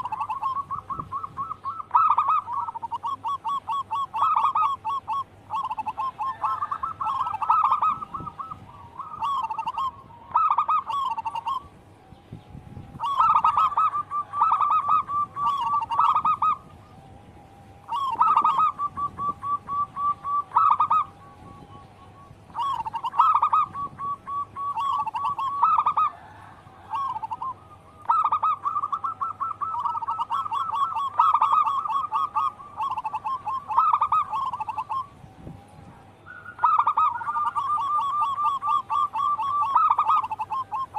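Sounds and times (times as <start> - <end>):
doves cooing: 0.0 - 40.9.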